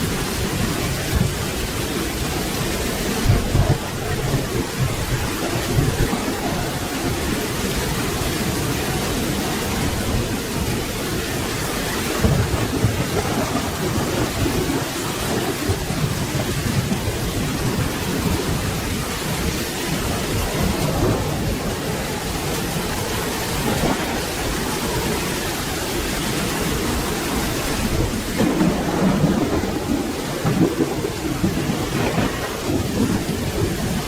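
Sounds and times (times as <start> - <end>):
rolling thunder: 0.0 - 34.0
steady rain: 0.0 - 34.0.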